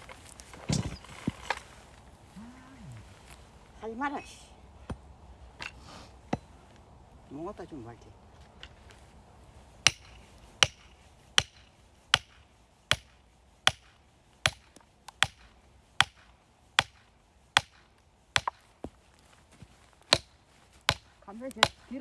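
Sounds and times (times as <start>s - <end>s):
axe chopping firewood: 4.9s - 6.6s, 9.8s - 19.3s, 19.9s - 22.0s.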